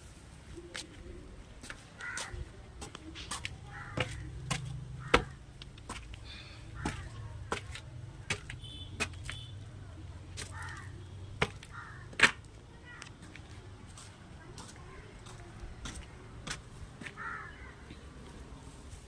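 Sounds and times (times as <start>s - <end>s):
crow cawing: 2.0s - 2.4s, 3.6s - 5.4s, 6.3s - 7.3s, 10.4s - 12.2s, 17.0s - 17.8s.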